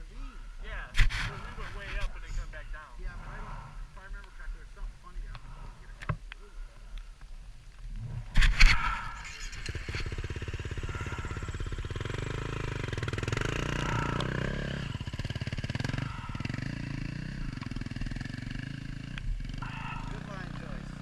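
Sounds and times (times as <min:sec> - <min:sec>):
dirt bike engine revving: 0:08.2 - 0:21.0.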